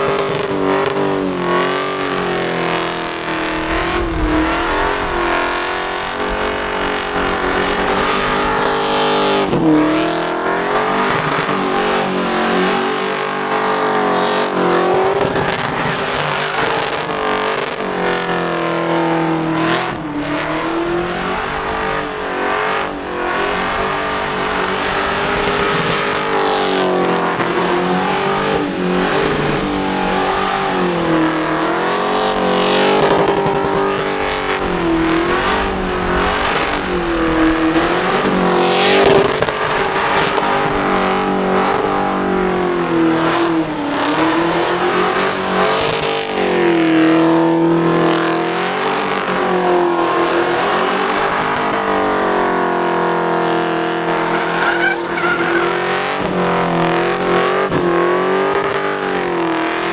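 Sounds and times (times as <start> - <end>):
car engine revving: 0.0 - 59.9
tyres spinning on pavement: 42.2 - 59.9.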